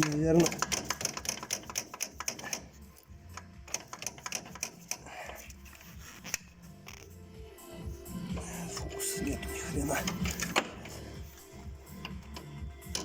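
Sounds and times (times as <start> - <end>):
metallic clicks and knocks: 0.0 - 5.5, 10.0 - 11.0, 11.9 - 13.0.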